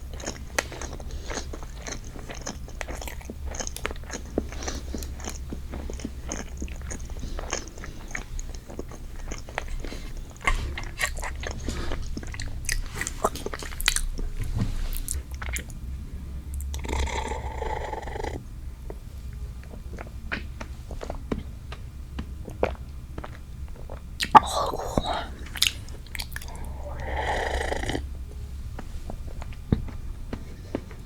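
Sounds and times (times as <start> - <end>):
wet chewing and biting: 0.0 - 15.8, 20.0 - 28.1
mouth clicks: 24.2 - 28.1.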